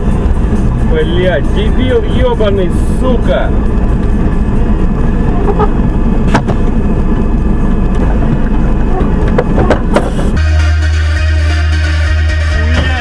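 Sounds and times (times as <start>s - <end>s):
car engine and road noise: 0.0s - 13.0s
music with steady bass: 10.3s - 13.0s.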